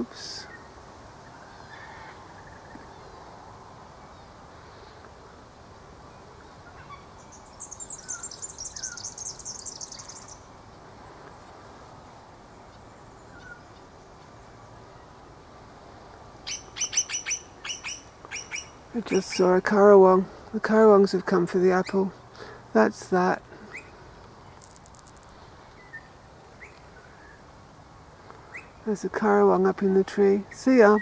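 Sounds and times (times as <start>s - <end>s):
loud bird calls: 6.1s - 11.2s, 16.4s - 19.5s
soft bird chirps: 6.1s - 11.6s.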